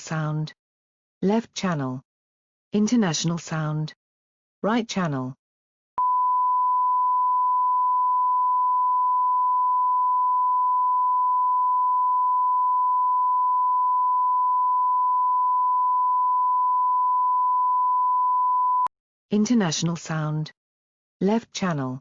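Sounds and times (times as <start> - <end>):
sine-wave test tone: 6.0 - 18.9.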